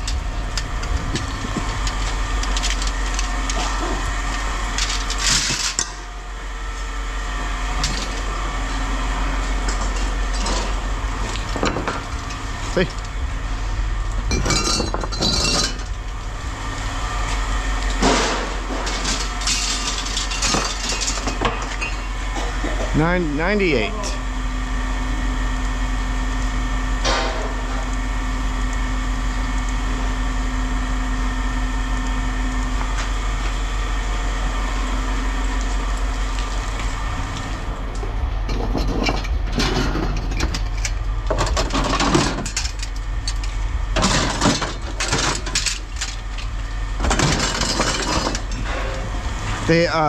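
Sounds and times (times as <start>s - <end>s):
metal clattering and knocks: 14.3s - 16.0s, 38.5s - 49.1s.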